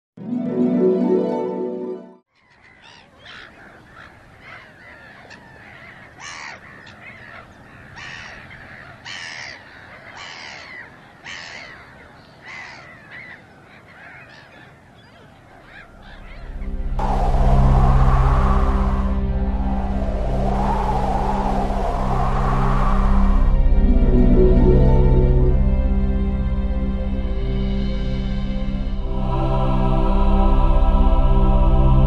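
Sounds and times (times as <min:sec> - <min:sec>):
birds calling: 0:02.3 - 0:16.8.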